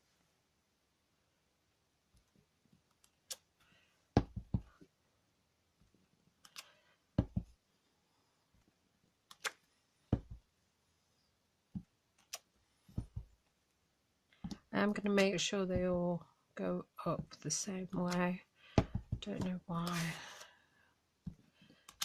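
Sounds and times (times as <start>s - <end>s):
stamp knocking on tabletop: 13.0s - 13.3s, 18.8s - 19.5s.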